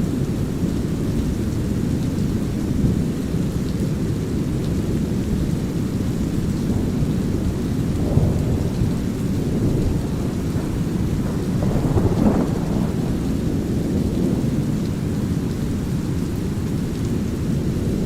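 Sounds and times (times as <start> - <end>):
light rain: 0.0 - 18.0
rolling thunder: 6.4 - 18.0.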